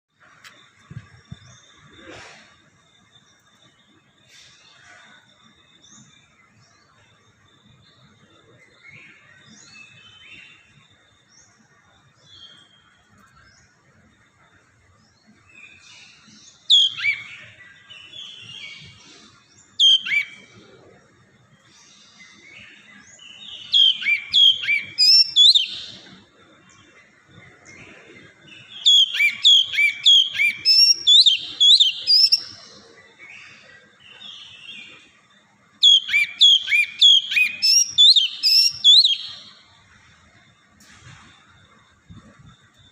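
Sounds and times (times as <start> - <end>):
bird singing sharp whistles: 16.7 - 17.3, 19.8 - 20.4, 23.6 - 26.0, 28.8 - 32.5, 35.8 - 39.5.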